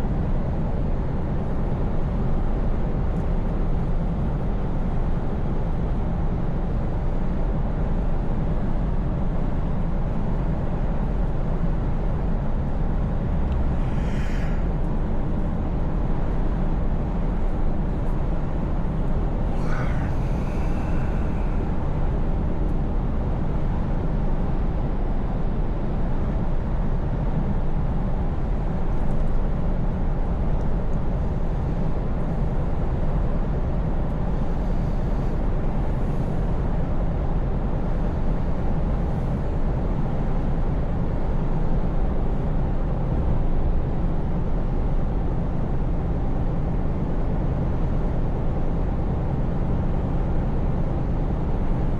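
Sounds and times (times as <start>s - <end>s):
diesel engine droning: 12.2s - 24.0s.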